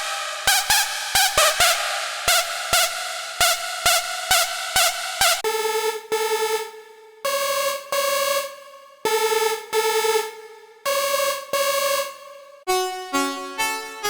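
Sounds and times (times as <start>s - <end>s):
synth lead melody: 12.7s - 14.0s.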